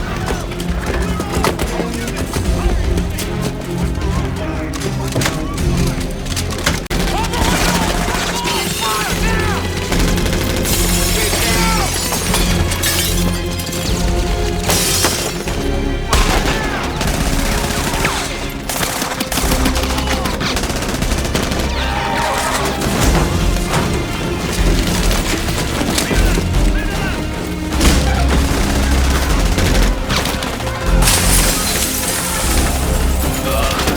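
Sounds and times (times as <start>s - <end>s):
background music score: 0.0s - 33.9s
rapid gunfire bursts: 6.6s - 12.0s, 16.2s - 33.9s.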